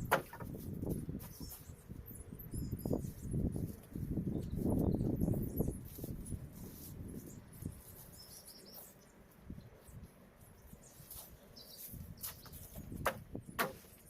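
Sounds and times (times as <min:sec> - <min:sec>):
sharp knocks: 0:00.0 - 0:00.5, 0:13.0 - 0:13.9
faint bird chirps: 0:07.1 - 0:12.6.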